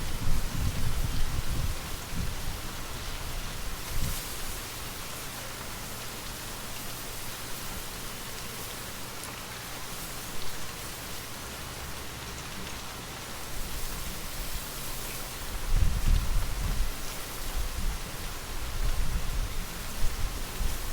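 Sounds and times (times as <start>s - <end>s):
gentle rain falling: 0.0s - 20.9s.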